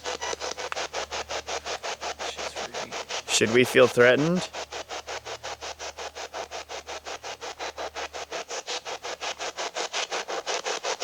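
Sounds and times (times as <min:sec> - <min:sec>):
radio static bursts: 0:02.2 - 0:04.5.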